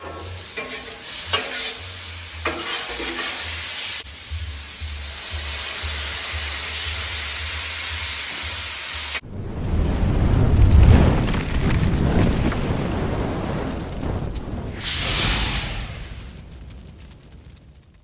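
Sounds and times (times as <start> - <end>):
spatula scraping griddle: 0.0 - 4.0
food sizzling on griddle: 0.0 - 9.2.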